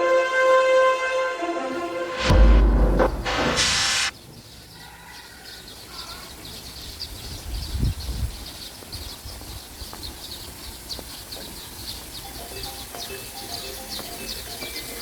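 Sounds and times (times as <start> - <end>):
intro music: 1.7 - 4.1
dull low thumps: 1.8 - 4.1
quiet outdoor ambience: 1.8 - 15.0
small birds chirping: 3.9 - 15.0.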